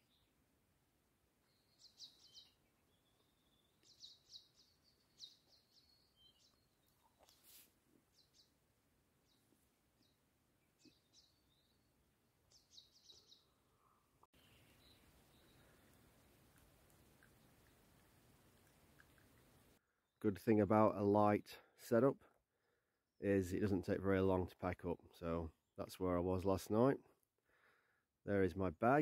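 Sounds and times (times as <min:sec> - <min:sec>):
faint bird chirps: 0:01.4 - 0:08.6, 0:09.2 - 0:20.2.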